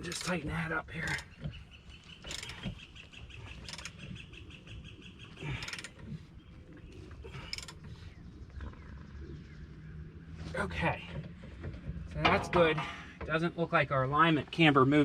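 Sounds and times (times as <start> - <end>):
knocks and creaks: 0.0 - 4.2, 10.3 - 13.7.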